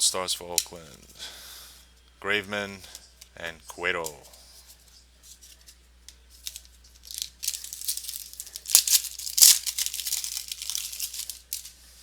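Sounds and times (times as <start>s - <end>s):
wrapper tearing and crinkling: 6.4s - 11.7s.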